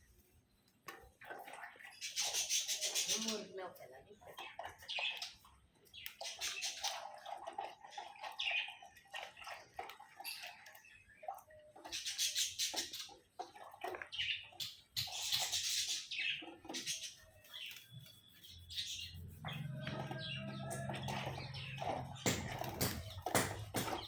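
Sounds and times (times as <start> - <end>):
parakeet chirping: 14.2 - 23.8.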